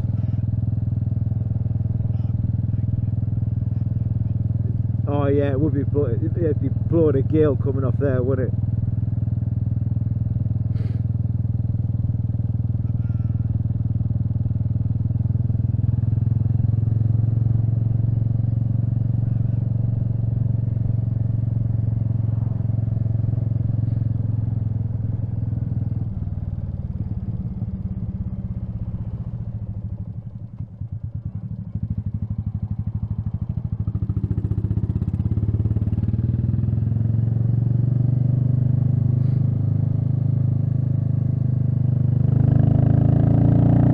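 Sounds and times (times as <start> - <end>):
motorcycle engine cruising: 0.0 - 43.9.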